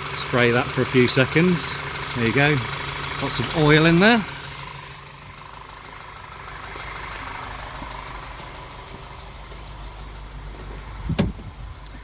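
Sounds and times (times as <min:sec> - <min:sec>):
car engine idling: 0:00.0 - 0:12.0
sharp thump: 0:11.1 - 0:11.5.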